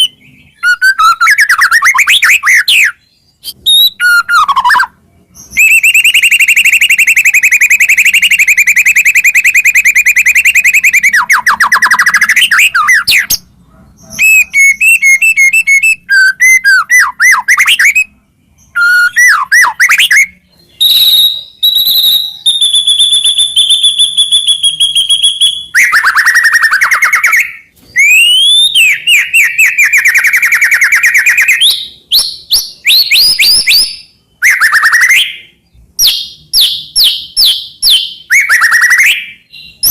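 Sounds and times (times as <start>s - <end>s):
songbird singing varied phrases: 0.0s - 39.9s.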